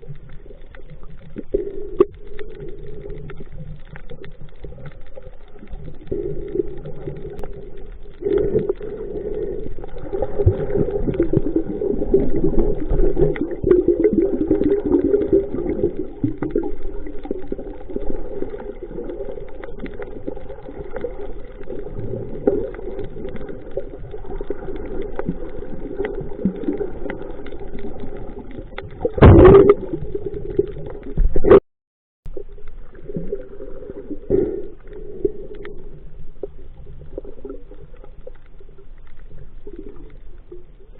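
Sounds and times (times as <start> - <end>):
muffled underwater sloshing: 0.0 - 31.6, 32.3 - 40.9.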